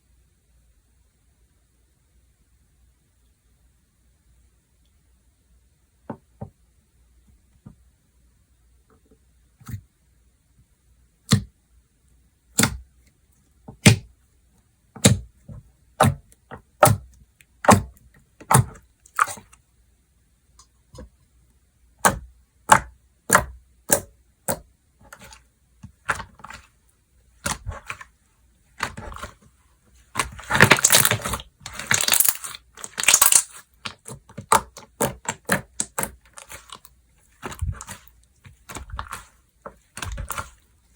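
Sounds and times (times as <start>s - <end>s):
slime squishing: 12.6s - 12.9s, 15.0s - 19.6s, 22.0s - 40.9s
slime clicking and popping: 30.2s - 36.8s.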